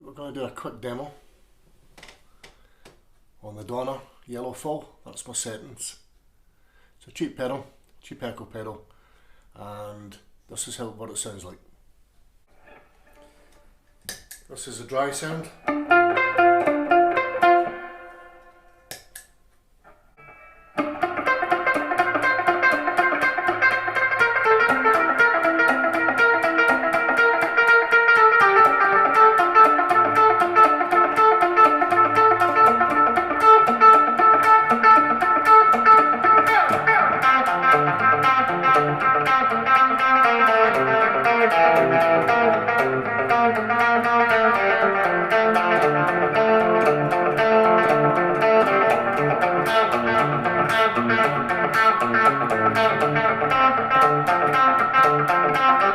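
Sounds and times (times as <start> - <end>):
electric guitar with echo: 15.1 - 19.0, 19.8 - 55.9.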